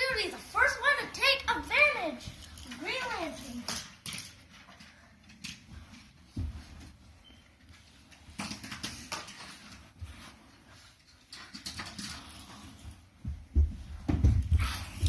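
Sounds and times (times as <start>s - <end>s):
toy cars clicking and clattering: 0.1s - 5.7s, 8.2s - 9.8s, 11.0s - 12.8s.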